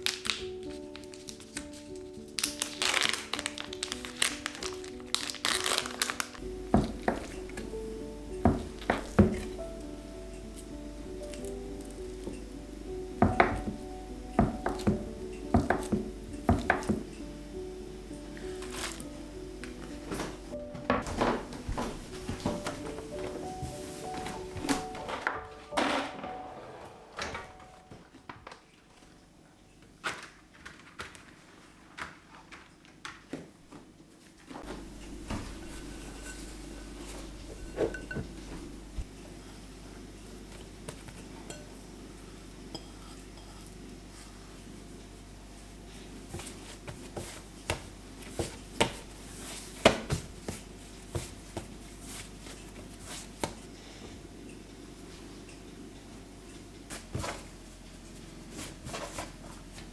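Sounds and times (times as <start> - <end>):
faint steady hum: 6.4 - 25.2, 34.5 - 59.9
kitchen utensils and dishes knocking: 8.4 - 9.6, 14.4 - 17.1, 34.7 - 39.1.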